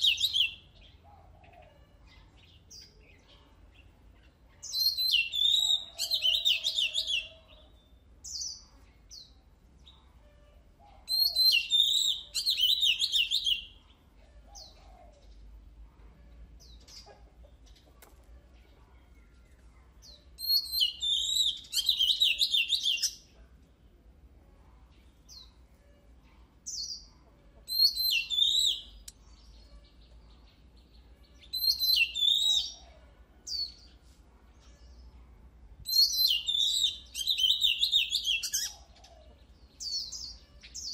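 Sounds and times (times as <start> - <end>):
magpie-robin singing whistled phrases: 0.0 - 0.6, 4.6 - 7.3, 11.1 - 13.8, 20.4 - 23.2, 27.7 - 29.2, 31.4 - 32.8, 35.8 - 38.9.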